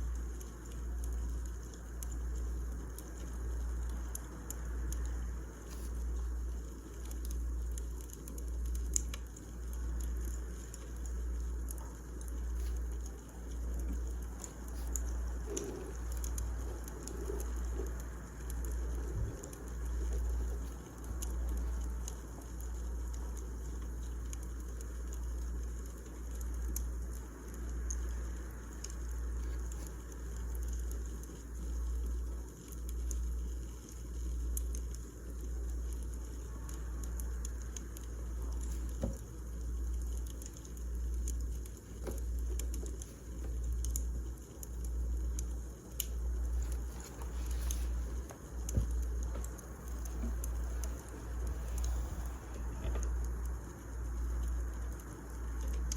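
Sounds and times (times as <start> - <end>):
wood fire crackling and popping: 0.0 - 55.9
low rumble: 46.4 - 54.3.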